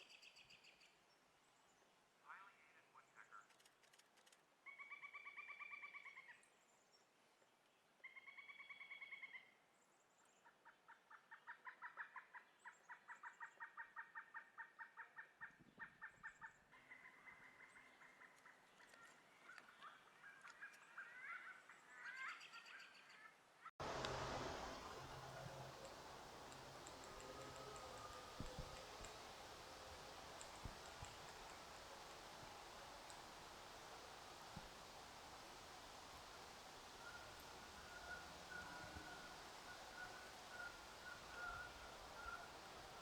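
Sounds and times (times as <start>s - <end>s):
woodpecker calling: 23.8s - 43.0s.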